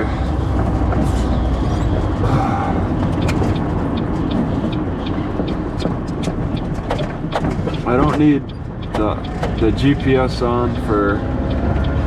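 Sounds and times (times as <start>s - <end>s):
car engine and road rumble: 0.0s - 12.0s
sharp ticks: 2.8s - 12.0s.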